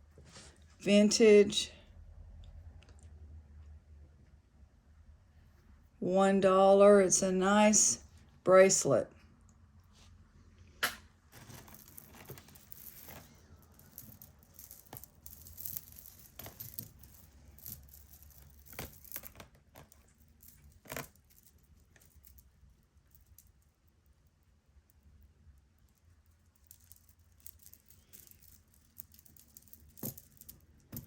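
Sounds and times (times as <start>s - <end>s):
crinkling: 11.3s - 22.5s
jewelry clicking and rattling: 11.3s - 31.0s.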